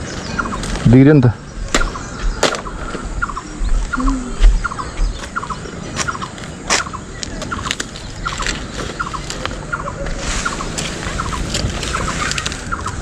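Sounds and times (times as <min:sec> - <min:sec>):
wind buffeting microphone: 0:00.0 - 0:13.0
banana leaf crackling: 0:06.7 - 0:13.0.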